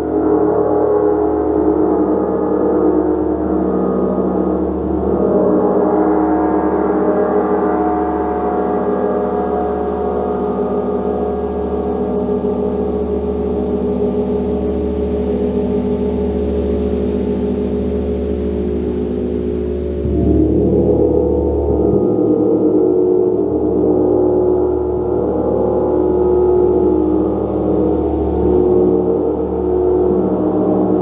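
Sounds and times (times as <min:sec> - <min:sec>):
steady low hum: 0:10.2 - 0:31.0
gong ringing: 0:19.5 - 0:25.0.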